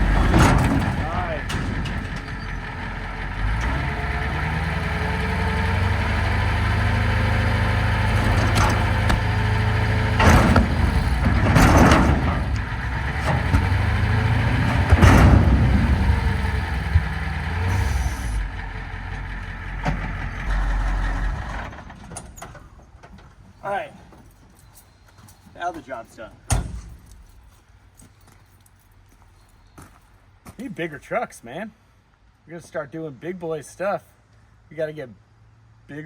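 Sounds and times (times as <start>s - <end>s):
sharp metallic clanks: 0.0s - 4.0s
diesel truck engine running: 0.0s - 23.4s.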